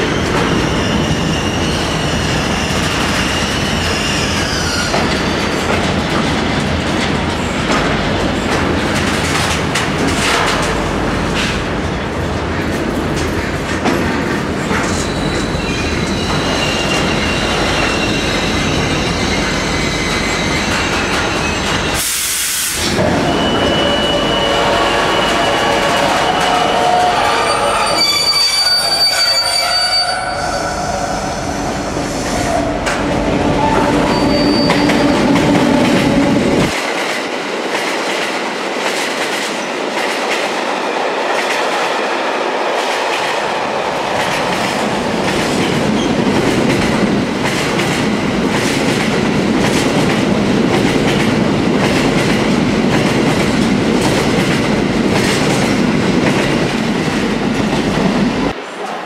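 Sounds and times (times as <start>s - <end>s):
freight train rumble: 0.0s - 59.0s
high wheel squeal: 23.0s - 32.8s, 33.4s - 36.4s.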